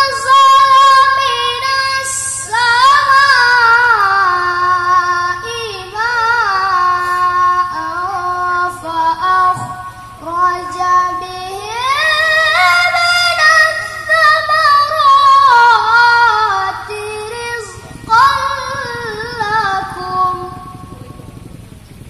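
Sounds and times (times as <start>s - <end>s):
man chanting melodically: 6.4s - 11.7s, 16.4s - 21.6s.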